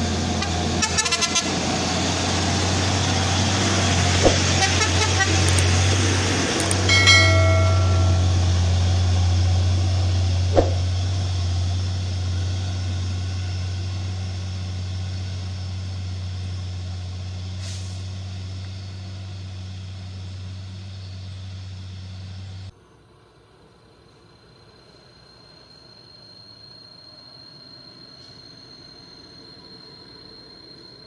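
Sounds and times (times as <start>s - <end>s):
diesel truck engine under load: 0.0s - 22.7s
horn toot: 4.2s - 5.6s
sharp knock: 6.9s - 8.4s, 10.5s - 11.0s.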